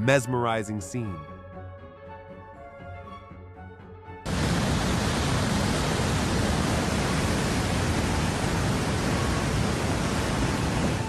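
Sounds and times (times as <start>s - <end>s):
floodwater rushing: 4.3s - 11.0s.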